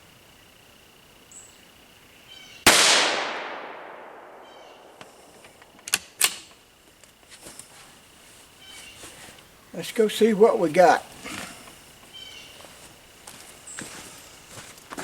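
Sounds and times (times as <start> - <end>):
rifle shot: 2.7 - 5.0.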